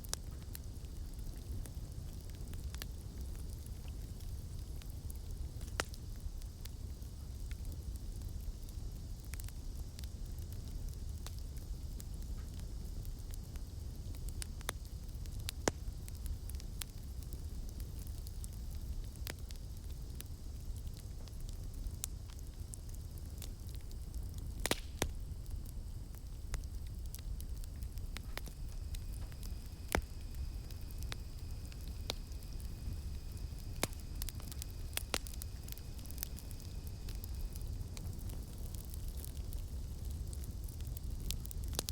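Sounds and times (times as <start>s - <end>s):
burning wood crackling and popping: 0.0s - 41.9s
low rumble of flames: 0.0s - 41.9s
night insects buzzing: 25.0s - 38.3s.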